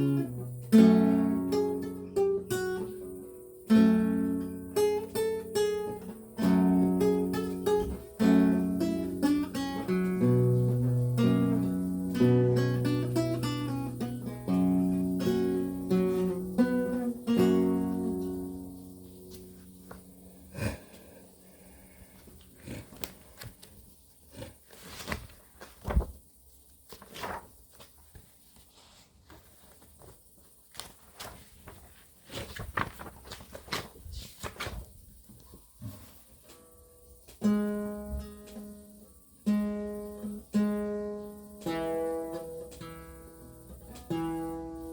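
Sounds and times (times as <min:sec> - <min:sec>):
lute plucked: 0:00.0 - 0:20.7, 0:39.5 - 0:44.9.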